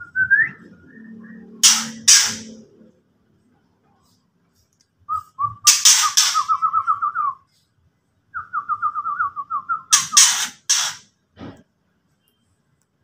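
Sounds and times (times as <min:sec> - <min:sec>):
bird rattling call: 0:05.7 - 0:06.5, 0:09.9 - 0:11.0
harsh bird rasps: 0:05.7 - 0:06.6, 0:09.9 - 0:11.0.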